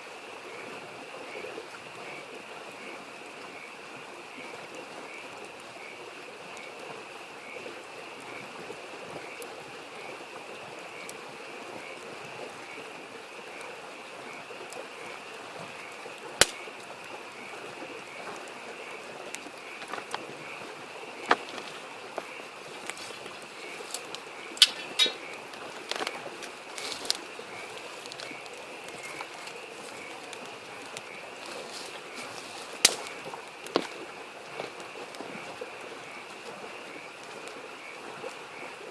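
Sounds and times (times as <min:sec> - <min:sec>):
frogs calling: 0:00.0 - 0:38.9
stream babbling: 0:00.0 - 0:38.9
campfire pops: 0:16.2 - 0:17.3, 0:18.4 - 0:35.5.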